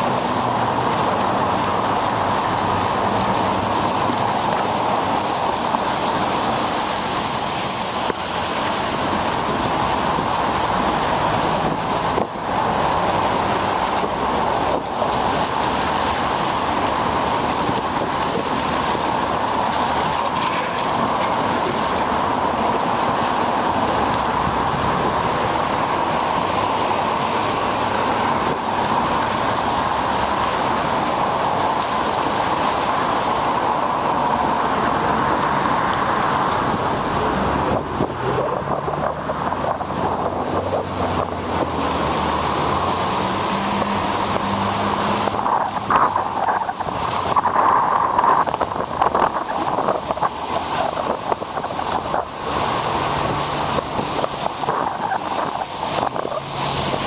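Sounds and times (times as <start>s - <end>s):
bicycle road noise: 0.0s - 57.0s
low motor vehicle hum: 0.0s - 57.0s.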